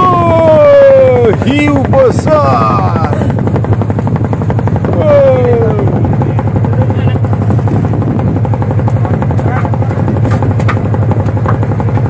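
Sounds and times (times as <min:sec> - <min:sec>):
person calling out: 0:00.0 - 0:01.4
engine running with pulsing beat: 0:00.0 - 0:12.0.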